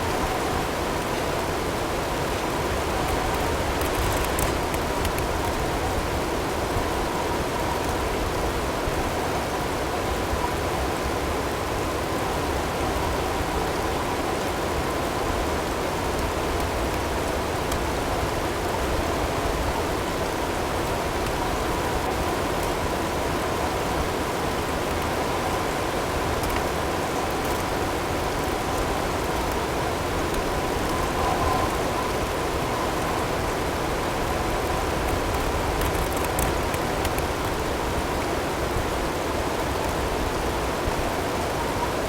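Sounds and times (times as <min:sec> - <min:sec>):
wind-driven snow and hail rushing: 0:00.8 - 0:08.4, 0:15.4 - 0:41.0.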